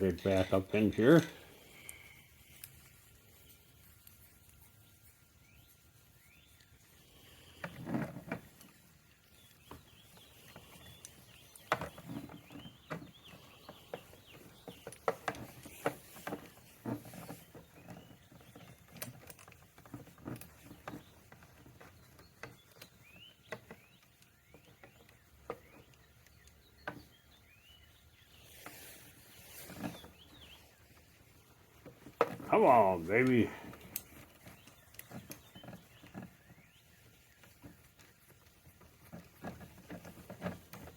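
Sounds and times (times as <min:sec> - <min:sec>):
light clicks and knocks of hand work: 0:00.1 - 0:04.8.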